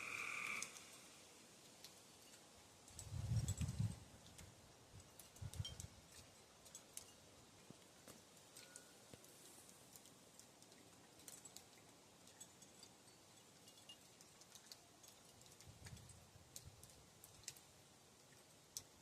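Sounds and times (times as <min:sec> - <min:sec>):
low rumble of wind gust: 0:03.0 - 0:04.3
wind chimes tinkling: 0:12.3 - 0:15.4.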